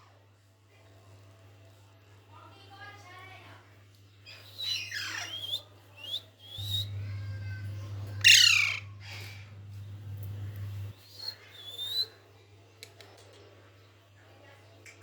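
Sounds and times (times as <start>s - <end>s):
low steady hum: 6.5s - 11.0s
parrot squawking: 6.6s - 9.5s.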